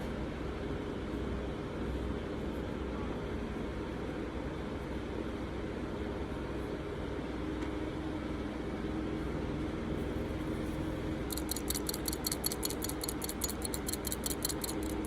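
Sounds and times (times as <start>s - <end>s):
steady low hum: 8.8s - 15.0s
fast small dry clicks: 11.2s - 15.0s.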